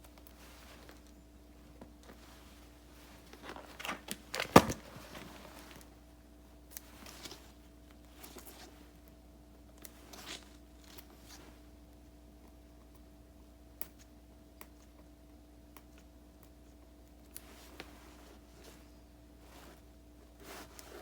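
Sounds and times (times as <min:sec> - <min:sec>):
paper and stickers rustling: 0:00.0 - 0:06.0.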